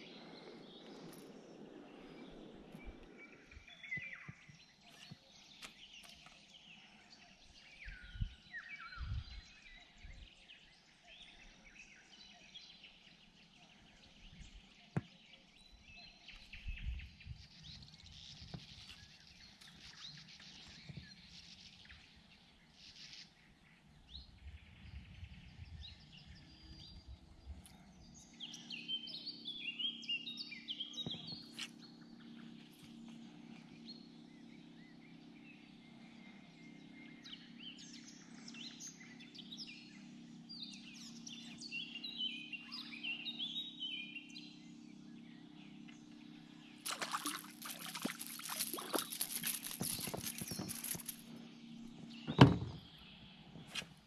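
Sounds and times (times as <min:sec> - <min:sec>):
steady low hum: 0:00.0 - 0:14.9, 0:15.6 - 0:54.0
birds chirping and calling: 0:46.9 - 0:51.4.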